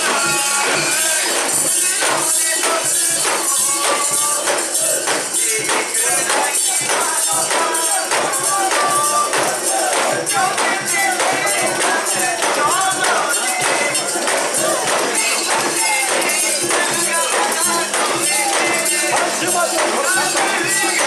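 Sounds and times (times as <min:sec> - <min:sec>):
crowd chanting and singing: 0:00.0 - 0:21.0
rhythmic metallic jingling: 0:00.0 - 0:21.0.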